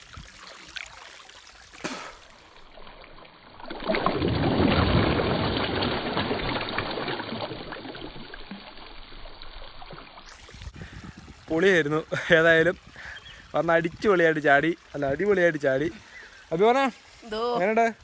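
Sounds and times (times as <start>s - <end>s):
churning water: 0.0s - 18.0s
flowing stream: 0.0s - 18.0s
loud splash into water: 1.7s - 2.7s, 3.7s - 8.3s.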